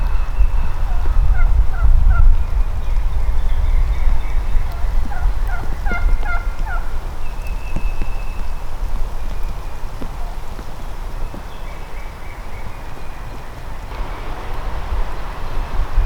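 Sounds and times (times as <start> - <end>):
heavy low rumble: 0.0 - 11.4, 13.8 - 16.0
wild turkey calling: 0.1 - 2.5, 3.9 - 13.6.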